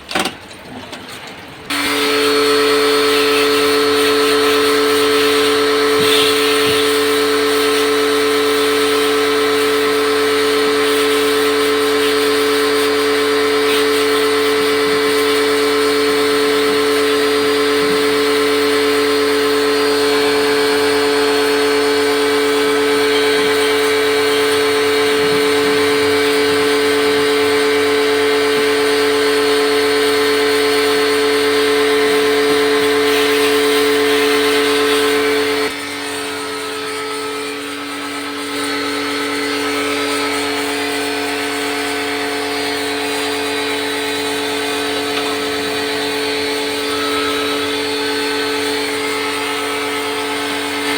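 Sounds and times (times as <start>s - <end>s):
machine motor whining: 1.7s - 50.9s
hiss: 2.7s - 27.6s.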